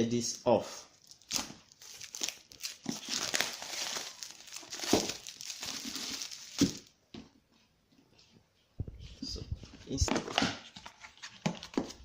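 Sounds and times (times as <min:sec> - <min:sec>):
plastic wrapping crinkling: 0:01.0 - 0:06.9
plastic wrapping ripping: 0:01.0 - 0:06.9.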